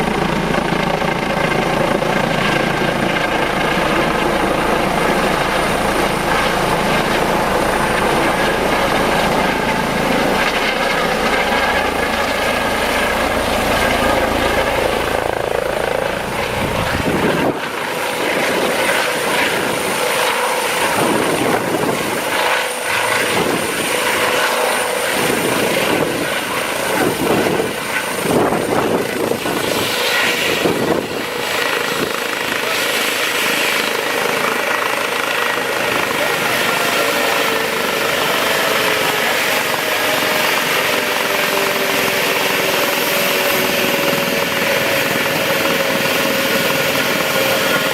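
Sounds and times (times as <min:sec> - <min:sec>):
helicopter rotor beating: 0:00.0 - 0:47.9
high turbine whine: 0:00.0 - 0:47.9
gusty rushing air: 0:11.8 - 0:17.8.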